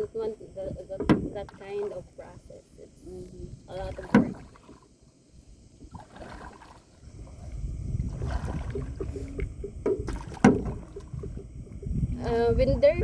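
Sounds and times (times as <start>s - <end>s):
paddle strokes through water: 1.1s - 12.1s
low rumble: 7.0s - 13.0s
sharp knocks: 9.6s - 11.9s.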